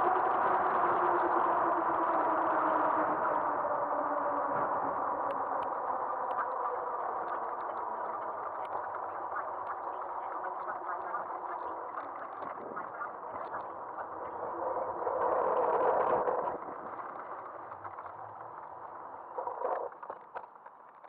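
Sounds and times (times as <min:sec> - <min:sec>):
small clicks and ticks: 0:05.2 - 0:21.0
tyre and wind noise: 0:12.4 - 0:21.0.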